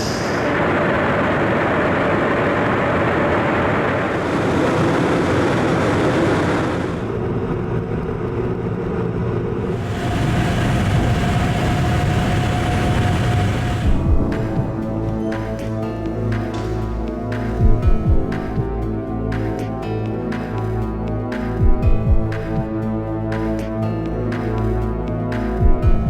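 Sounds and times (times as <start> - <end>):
loud mechanical roar: 0.0 - 8.0, 9.6 - 15.0.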